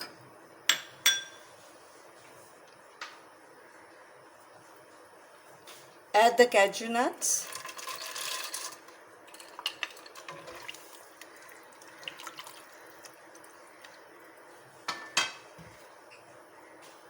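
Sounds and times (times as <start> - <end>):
water splashing in a pot: 7.4 - 13.9.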